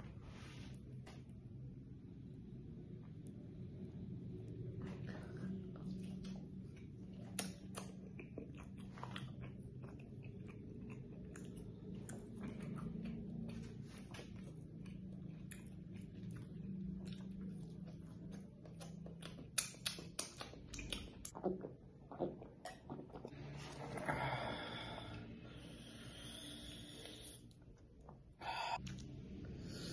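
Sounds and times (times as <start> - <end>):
low steady hum: 0.0 - 29.9
wet mouth clicks and smacks: 7.1 - 14.2, 18.6 - 21.4.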